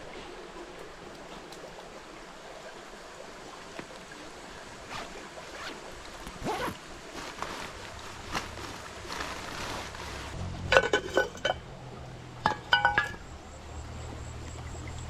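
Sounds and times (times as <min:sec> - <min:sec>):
cookware and utensils clinking: 0:10.7 - 0:11.6, 0:12.4 - 0:13.3.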